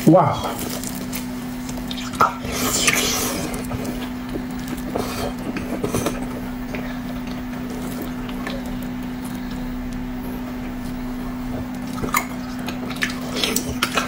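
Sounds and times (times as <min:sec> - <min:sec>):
steady low hum: 0:00.0 - 0:14.0
chewing noises: 0:00.3 - 0:14.0
noisy mouth sound: 0:01.6 - 0:14.0.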